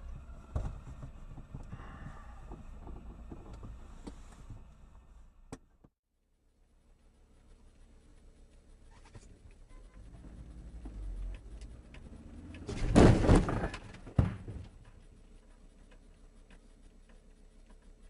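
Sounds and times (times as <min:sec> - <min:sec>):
car crash impact: 0:12.5 - 0:14.9.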